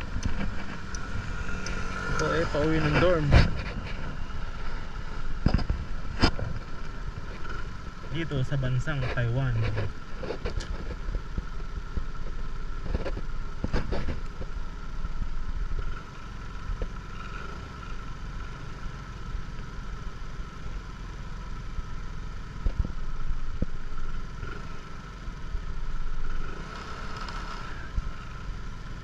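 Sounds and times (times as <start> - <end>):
steady whine: 0.0 - 16.0
motorcycle engine running: 0.0 - 29.0.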